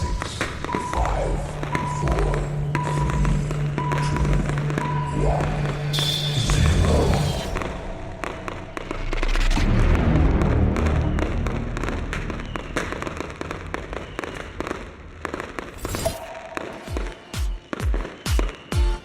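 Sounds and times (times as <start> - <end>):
fireworks cracking and banging: 0.0 - 19.0.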